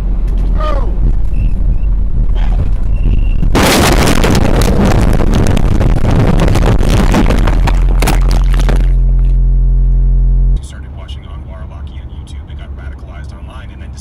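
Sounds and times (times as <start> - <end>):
vehicle engine rumbling: 0.0 - 14.0
loud vehicle crash: 2.6 - 9.4
crackling rattling debris: 2.7 - 9.4.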